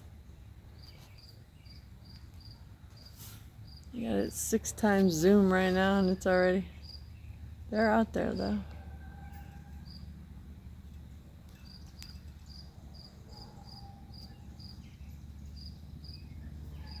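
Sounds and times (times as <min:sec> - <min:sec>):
cricket chirping: 0:00.0 - 0:17.0
low steady hum: 0:00.0 - 0:17.0.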